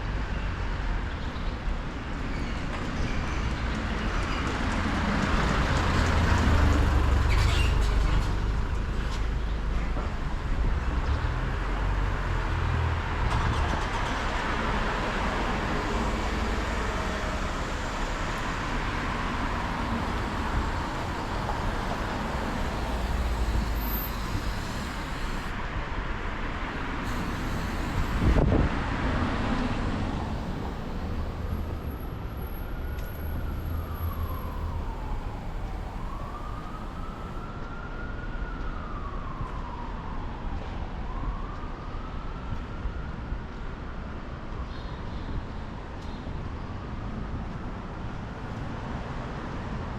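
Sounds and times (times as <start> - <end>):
traffic noise: 0.0 - 49.9
siren wailing: 14.3 - 25.6, 27.0 - 43.4.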